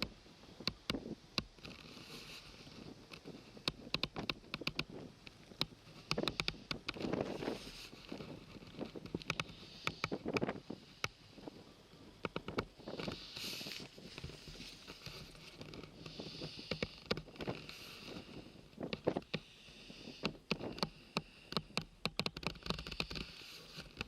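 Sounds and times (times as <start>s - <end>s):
wind buffeting microphone: 0.0s - 21.4s
sharp clicks and knocks: 3.1s - 11.2s, 12.2s - 17.8s, 20.2s - 24.0s.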